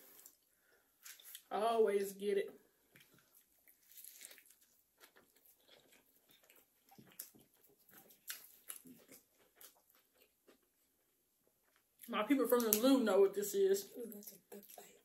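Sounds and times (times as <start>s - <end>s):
chewing and wet mouth clicks: 2.9s - 10.7s.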